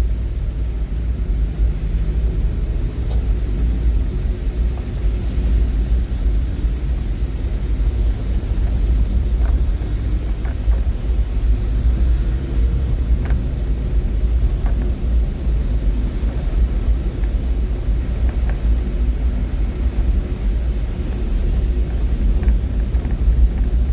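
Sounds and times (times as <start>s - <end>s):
vehicle running rumble: 0.0s - 23.9s
faint ticks: 7.9s - 13.6s.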